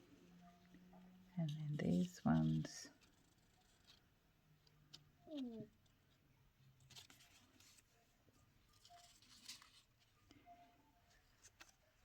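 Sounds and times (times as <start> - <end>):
sticker sheets rustling: 1.4 - 8.0, 8.7 - 10.2.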